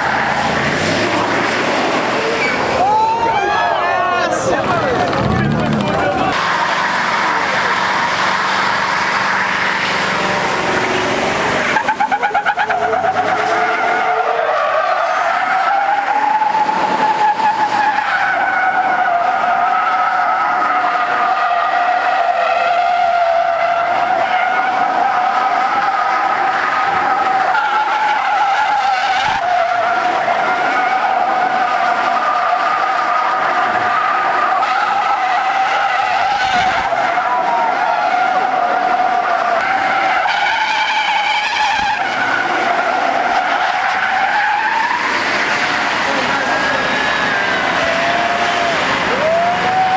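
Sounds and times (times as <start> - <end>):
car engine revving: 0.0 - 49.9
tires squealing: 0.0 - 49.9.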